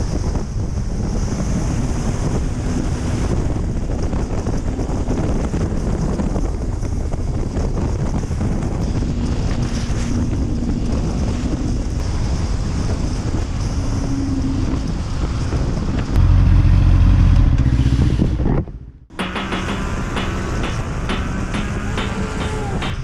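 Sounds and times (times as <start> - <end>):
wind rushing over microphone: 0.0 - 23.0
motorcycle engine running: 0.7 - 23.0
music: 19.1 - 23.0.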